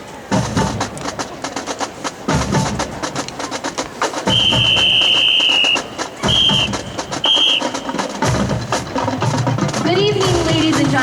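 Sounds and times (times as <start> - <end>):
marching drumline playing: 0.2 - 11.0
whistle blasts: 4.2 - 8.1.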